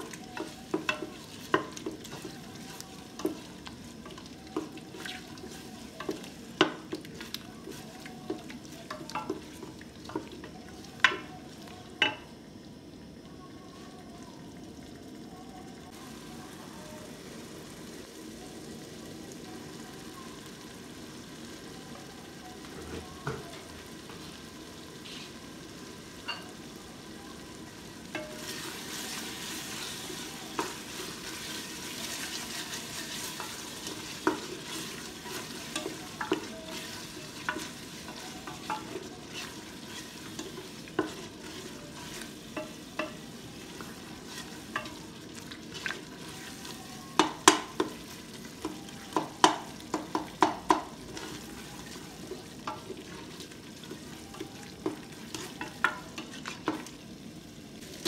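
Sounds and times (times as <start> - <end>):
curry sizzling in a pot: 0.0 - 58.0
spatula knocking against pot: 49.2 - 50.9.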